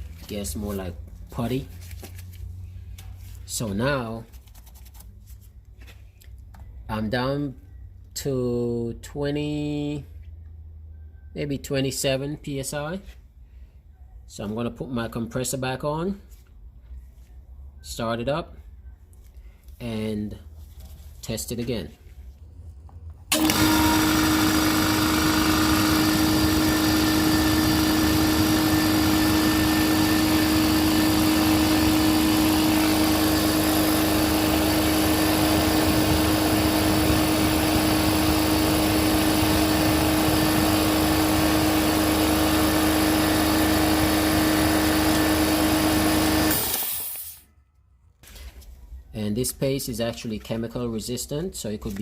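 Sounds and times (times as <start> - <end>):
air compressor running: 23.3 - 47.4.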